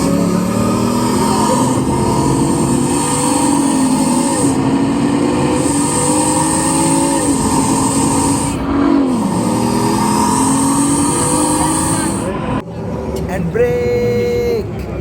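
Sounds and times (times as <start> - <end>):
car engine accelerating hard: 0.0 - 13.3.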